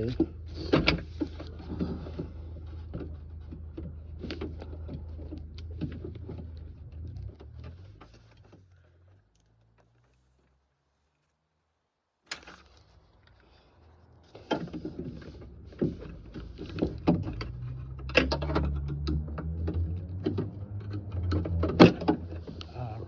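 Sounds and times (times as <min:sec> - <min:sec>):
clicks of car door parts: 0:00.0 - 0:08.7, 0:14.4 - 0:22.8.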